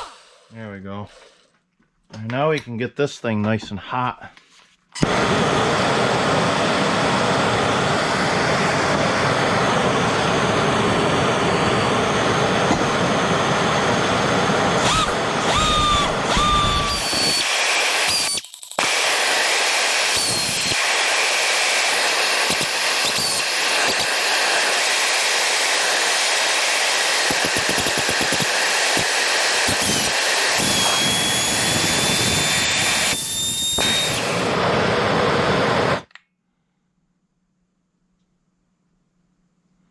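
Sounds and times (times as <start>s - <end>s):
pneumatic grinder motor running: 14.7s - 34.9s
short squeals: 14.8s - 18.4s.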